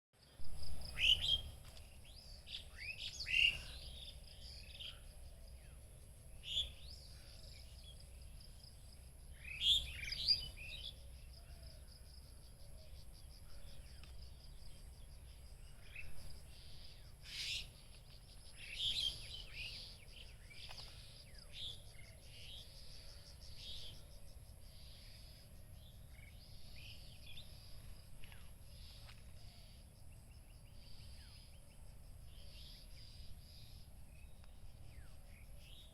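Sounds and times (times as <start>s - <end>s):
birds chirping: 0.6s - 35.9s.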